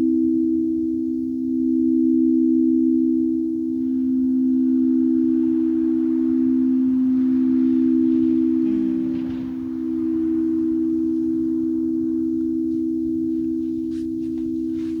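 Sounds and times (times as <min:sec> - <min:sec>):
singing bowl ringing: 0:00.0 - 0:15.0
striker scraping bowl: 0:03.7 - 0:15.0.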